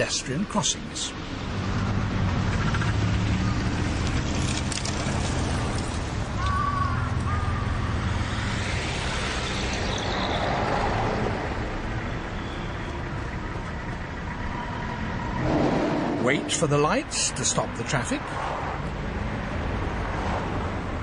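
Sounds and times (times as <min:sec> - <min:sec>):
cars passing: 0:00.8 - 0:21.0.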